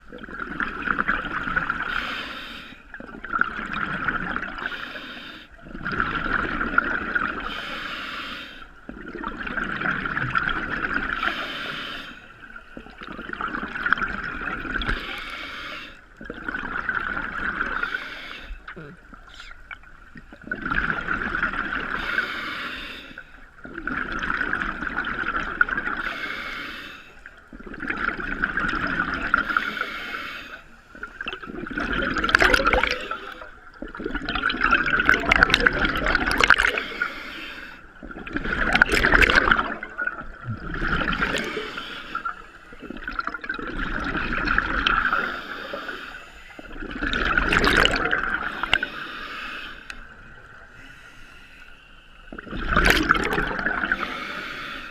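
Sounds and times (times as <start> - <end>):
exhaled bubbles rushing: 0.0 - 1.9, 3.0 - 4.7, 5.6 - 7.5, 8.9 - 11.2, 12.8 - 15.1, 16.2 - 17.8, 18.7 - 22.0, 23.6 - 26.0, 27.5 - 29.6, 31.1 - 36.9, 37.9 - 45.4, 46.6 - 48.9, 52.3 - 54.1
diver breathing through regulator: 1.8 - 2.9, 4.6 - 5.6, 7.4 - 8.8, 11.1 - 12.9, 14.8 - 16.2, 17.6 - 18.7, 21.8 - 23.4, 25.8 - 27.3, 29.3 - 31.4, 32.2 - 33.6, 35.1 - 43.4, 44.9 - 47.0, 47.6 - 54.9.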